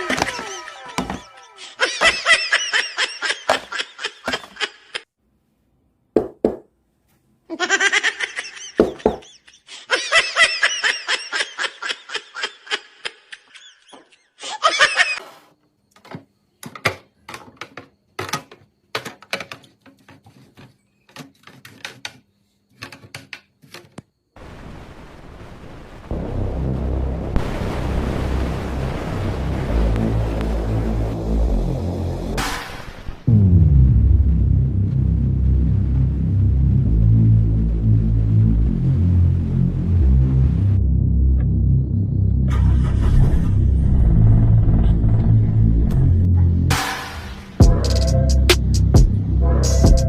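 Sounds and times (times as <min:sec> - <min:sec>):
bursts of laughter: 0:00.0 - 0:05.1, 0:07.5 - 0:15.2.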